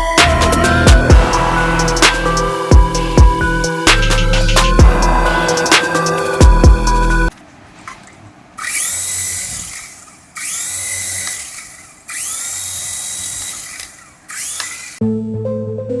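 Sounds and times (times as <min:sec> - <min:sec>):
toy electric motor whirring: 0:08.6 - 0:15.0.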